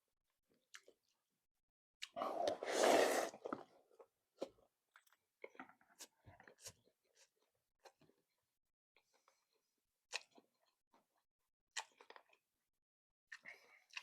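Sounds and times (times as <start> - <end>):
loud slurp of soup: 2.1 - 3.7
chewing with wet smacks: 13.3 - 14.0.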